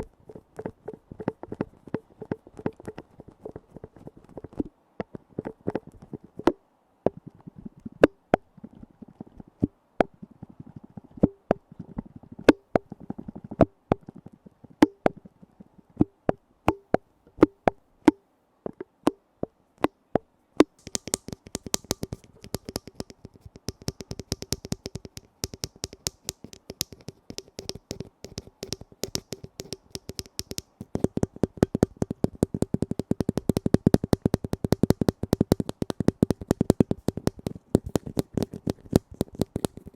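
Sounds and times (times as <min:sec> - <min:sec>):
lids being tapped: 0:20.6 - 0:39.9.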